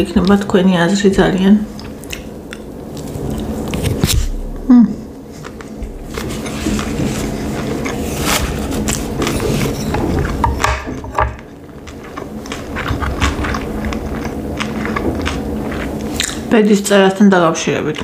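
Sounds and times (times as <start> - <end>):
wet chewing and mouth clicks: 1.7 - 4.0, 11.4 - 16.5
chopsticks knocking on wood: 10.4 - 11.5.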